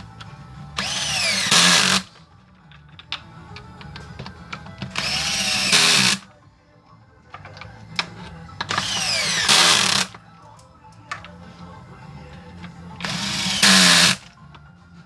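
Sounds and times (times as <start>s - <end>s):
rotary hammer motor spinning up: 0.8s - 2.1s, 5.0s - 6.2s, 8.7s - 10.1s, 13.0s - 14.2s.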